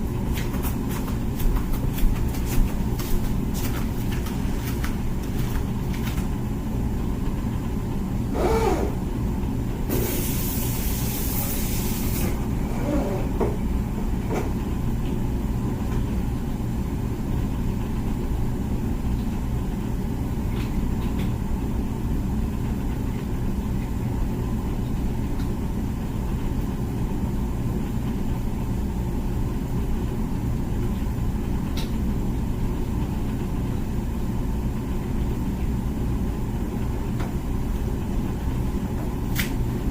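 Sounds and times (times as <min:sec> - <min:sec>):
dishwasher pump hum: 0:00.0 - 0:39.9
dishwasher hiss: 0:09.9 - 0:12.4.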